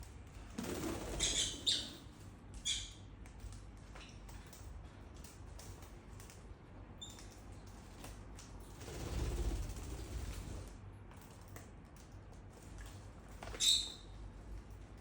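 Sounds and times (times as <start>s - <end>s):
rustle with low rumble: 0.0s - 13.5s
bird chirp: 1.1s - 2.0s, 2.6s - 3.1s, 13.5s - 14.2s
light clicks and taps: 3.2s - 8.6s, 11.1s - 13.0s.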